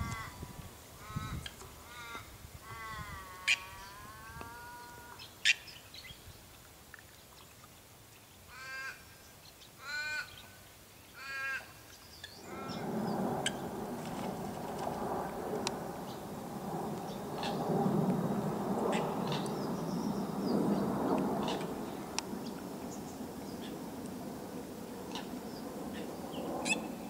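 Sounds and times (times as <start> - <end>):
bird calls: 11.2 - 15.0, 16.0 - 23.9, 25.1 - 27.0
steady rushing noise: 12.4 - 27.0.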